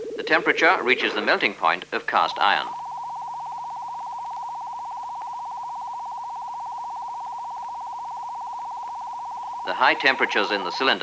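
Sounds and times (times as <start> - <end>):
fluttering electronic tone: 0.0 - 11.0.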